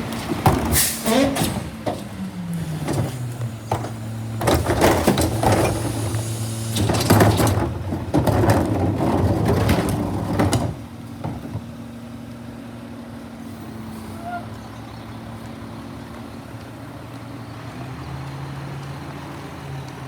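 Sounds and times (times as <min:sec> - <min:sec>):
clattering and banging: 0:00.0 - 0:11.7
garbage truck engine running: 0:00.0 - 0:20.0.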